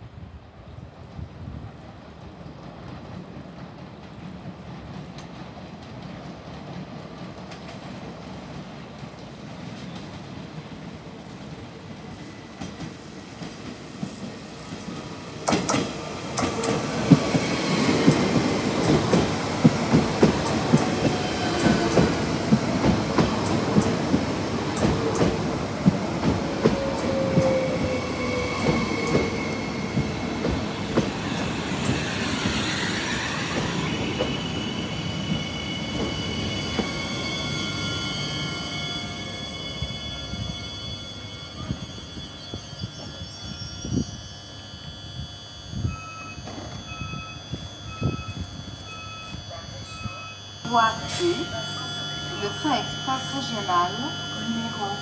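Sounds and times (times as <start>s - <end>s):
train wheels clicking over joints: 2.2s - 38.5s
falling train whine: 6.0s - 55.0s
brake squeal: 31.9s - 55.0s.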